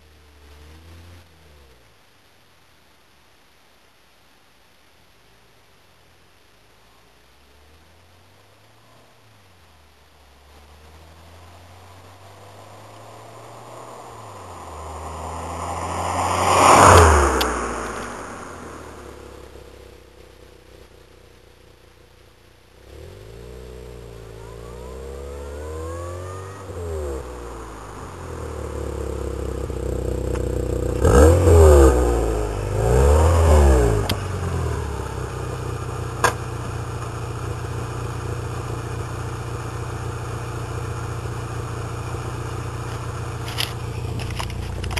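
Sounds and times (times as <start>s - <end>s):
car engine idling: 5.2s - 44.9s
car exhaust revving: 10.4s - 44.9s.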